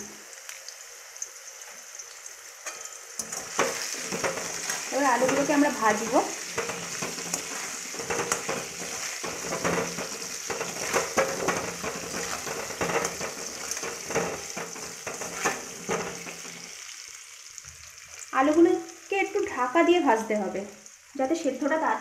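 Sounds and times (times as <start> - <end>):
potatoes sizzling in hot oil: 0.0 - 22.0
metal spatula scraping pan: 2.6 - 16.9.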